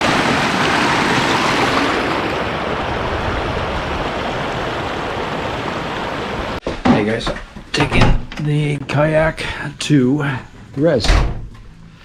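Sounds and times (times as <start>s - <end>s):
steady rushing noise: 0.0s - 6.6s.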